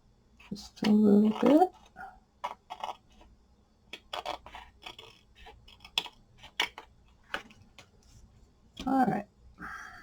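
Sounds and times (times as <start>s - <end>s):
scissors snipping paper: 0.8s - 3.2s, 3.9s - 7.5s.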